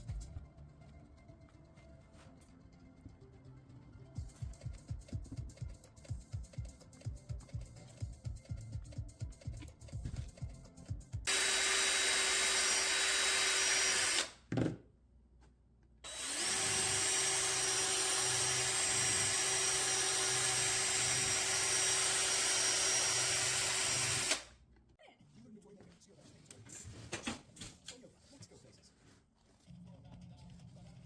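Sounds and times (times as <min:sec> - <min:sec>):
electric power tool motor running: 0:11.3 - 0:14.4, 0:16.1 - 0:24.5.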